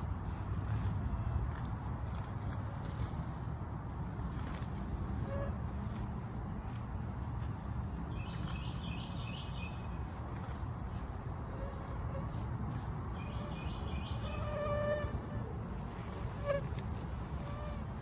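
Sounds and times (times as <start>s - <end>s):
higher insect chirping: 3.8s - 18.0s
high-pitched insect chorus: 4.3s - 18.0s.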